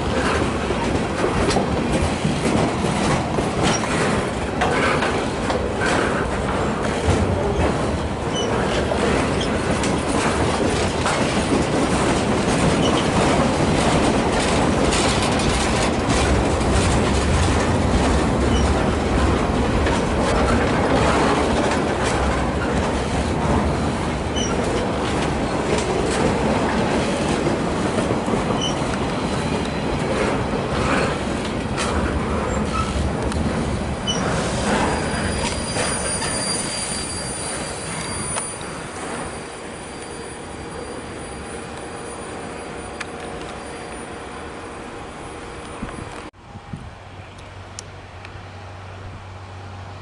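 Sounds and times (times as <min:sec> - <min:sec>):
train wheels on rails: 0:00.0 - 0:50.0
faint wheel squeals: 0:34.1 - 0:44.2.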